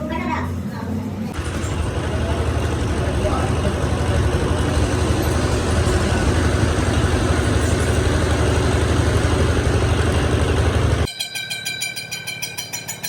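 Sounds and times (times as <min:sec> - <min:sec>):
engine low rumble: 0:00.7 - 0:11.1.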